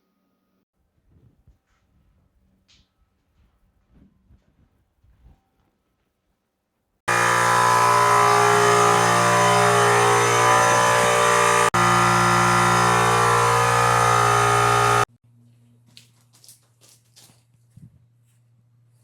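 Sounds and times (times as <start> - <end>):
loud machine running: 7.1 - 15.1.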